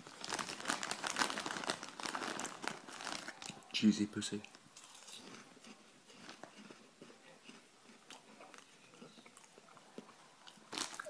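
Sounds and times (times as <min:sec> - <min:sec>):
chewing crunchy snacks: 0:00.2 - 0:03.8, 0:04.4 - 0:11.0.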